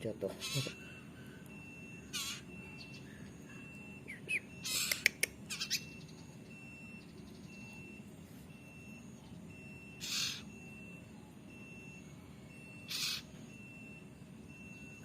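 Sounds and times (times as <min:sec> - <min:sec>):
bird chick begging squawks: 0:00.4 - 0:01.0, 0:02.0 - 0:02.5, 0:04.1 - 0:06.1, 0:10.0 - 0:10.5, 0:12.8 - 0:13.3
sharp clicks: 0:04.8 - 0:05.4.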